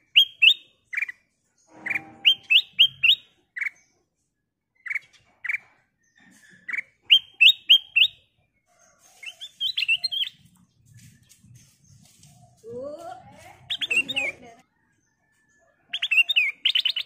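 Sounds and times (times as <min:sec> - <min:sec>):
bird singing whistled notes: 0:00.0 - 0:03.8, 0:06.5 - 0:08.3, 0:09.2 - 0:12.7, 0:13.6 - 0:14.4, 0:15.9 - 0:17.0.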